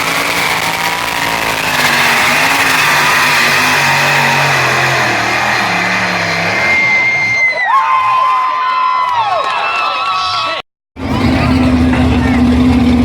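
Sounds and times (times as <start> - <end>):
tractor engines running hard: 0.0 - 7.3, 11.0 - 13.0.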